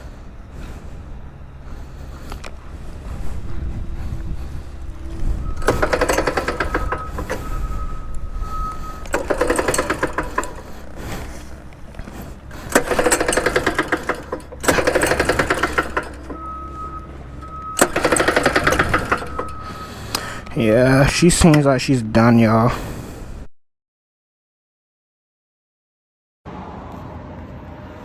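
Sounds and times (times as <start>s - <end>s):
engine pull-starter rattling: 0.0s - 22.3s.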